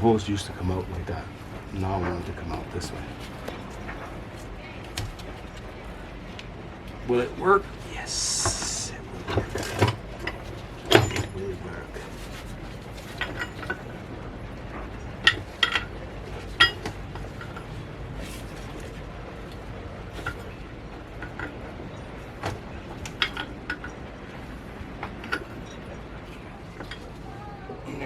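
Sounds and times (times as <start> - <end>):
low background noise: 0.0 - 28.0
metal fittings and tools clinking: 10.9 - 11.5.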